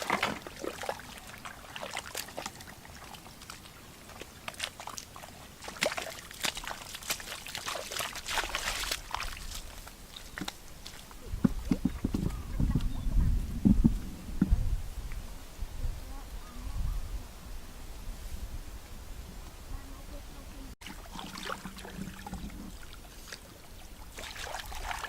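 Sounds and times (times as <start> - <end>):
water sloshing and splashing: 0.0 - 14.0, 20.8 - 25.0.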